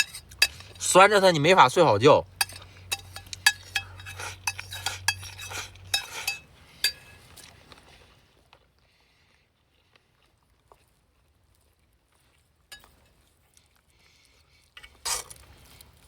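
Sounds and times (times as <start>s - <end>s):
utensils clicking: 2.4s - 7.0s.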